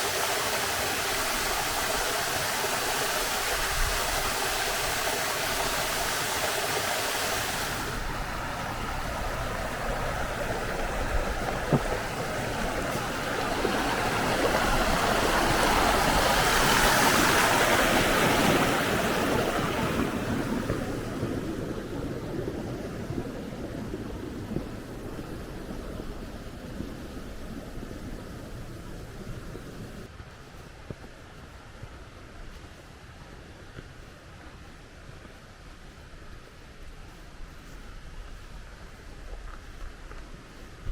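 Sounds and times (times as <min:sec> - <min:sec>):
waterfall rushing water: 0:00.0 - 0:30.1.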